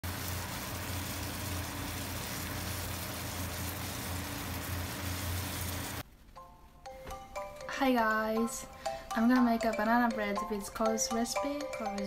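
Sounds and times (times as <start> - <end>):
bananas sizzling in butter: 0.0 - 6.0.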